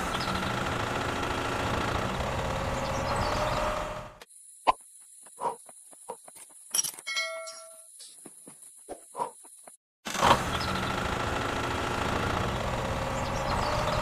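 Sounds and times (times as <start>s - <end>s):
small electric motor running: 0.0s - 4.2s, 10.2s - 14.0s.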